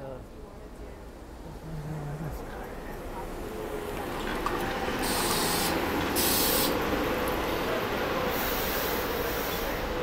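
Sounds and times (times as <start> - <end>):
electric train rumbling: 2.6 - 10.0
hissing air bursts: 5.0 - 6.8, 8.3 - 9.8.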